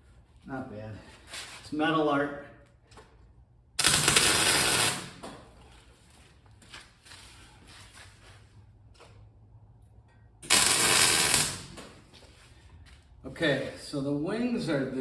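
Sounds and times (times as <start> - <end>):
electric arc welding crackle: 3.8 - 5.4, 10.4 - 12.1.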